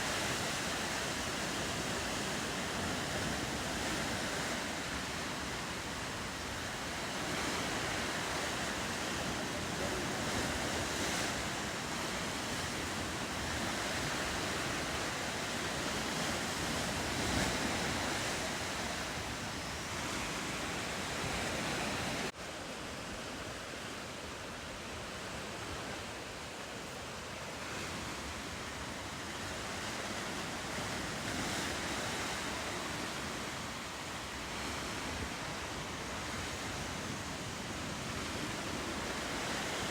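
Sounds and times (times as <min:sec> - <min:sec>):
surf on rocky shoreline: 0:00.0 - 0:39.9
wind: 0:00.0 - 0:39.9.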